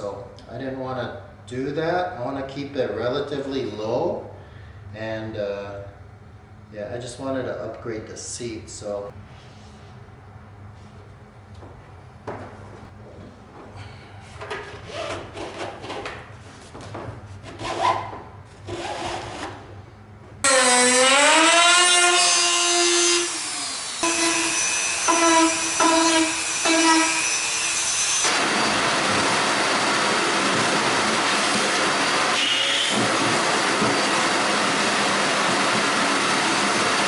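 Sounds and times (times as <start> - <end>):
knocking and rubbing of parts: 11.7 - 19.6
power drill: 18.7 - 19.5, 20.5 - 37.0.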